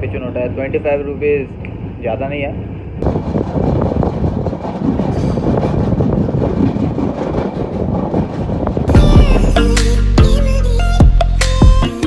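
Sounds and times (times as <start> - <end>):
train wheels rumbling on rails: 0.0 - 9.8
rushing air: 1.5 - 10.0.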